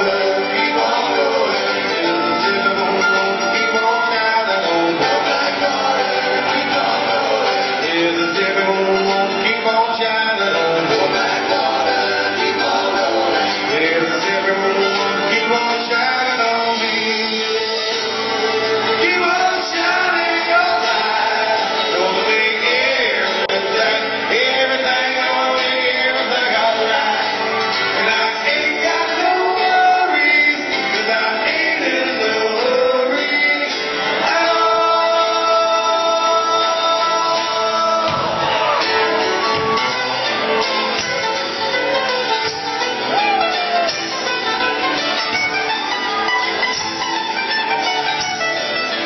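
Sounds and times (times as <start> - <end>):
live rock band playing: 0.0 - 49.0
person singing: 0.0 - 49.0.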